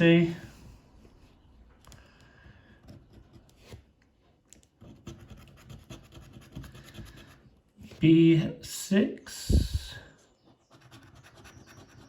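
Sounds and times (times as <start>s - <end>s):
scratch card being scraped: 4.8s - 7.5s, 10.5s - 12.0s.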